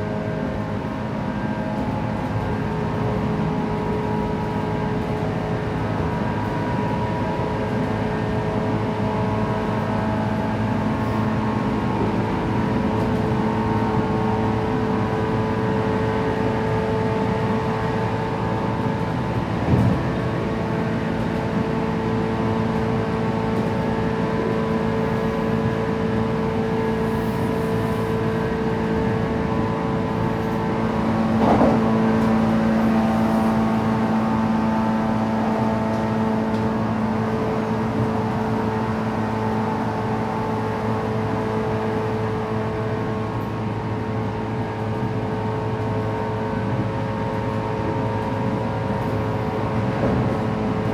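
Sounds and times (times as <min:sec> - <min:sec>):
train wheels rumbling on rail: 0:00.0 - 0:50.9
traction motor whine: 0:19.3 - 0:42.7.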